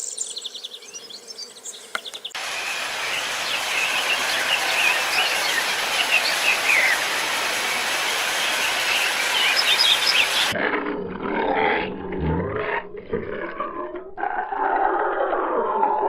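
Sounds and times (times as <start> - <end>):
birds chirping: 0.0 - 10.6
steady outdoor hiss: 0.0 - 10.6.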